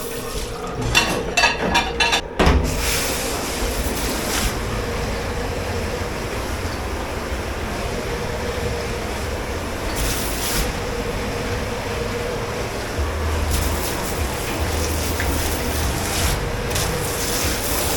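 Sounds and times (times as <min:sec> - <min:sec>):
dishwashing machinery humming: 0:00.0 - 0:17.9
brief hissing bursts: 0:02.7 - 0:04.6, 0:09.9 - 0:10.8, 0:13.5 - 0:17.9.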